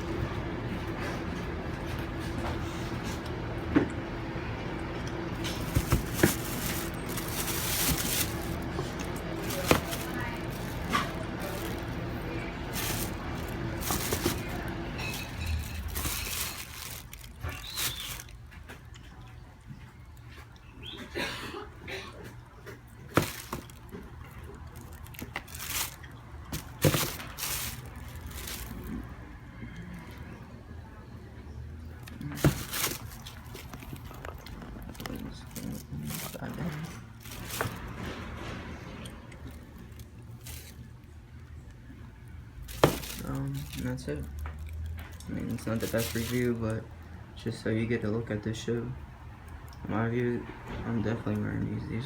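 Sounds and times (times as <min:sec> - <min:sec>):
packaging rustling: 0:05.4 - 0:18.5, 0:23.1 - 0:29.0, 0:32.4 - 0:38.0, 0:39.8 - 0:40.8, 0:42.7 - 0:46.7
sharp handling knocks: 0:05.5 - 0:08.8.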